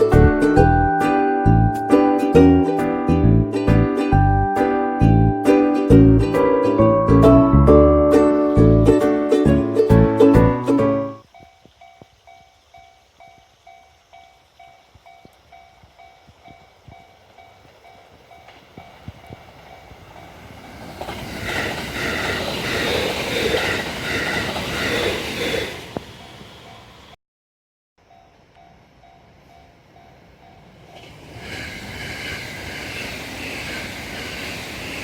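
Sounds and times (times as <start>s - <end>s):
crossing warning bell ringing: 0.0s - 2.8s
train wheels clattering on rails: 11.3s - 26.9s, 28.6s - 35.0s.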